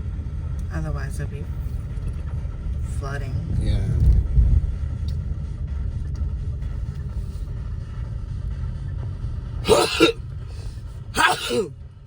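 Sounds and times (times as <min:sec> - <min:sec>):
car road and engine rumble: 0:00.0 - 0:11.7
short voice burst: 0:09.7 - 0:11.7.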